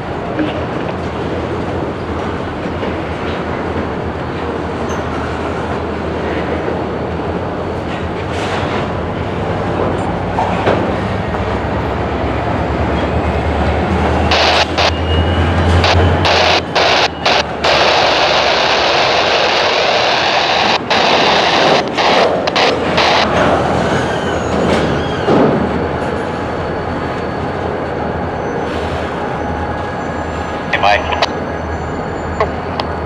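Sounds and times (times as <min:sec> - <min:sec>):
freight cars rumbling: 0:00.0 - 0:33.0
loud abrupt bursts: 0:14.3 - 0:15.0, 0:15.7 - 0:23.4.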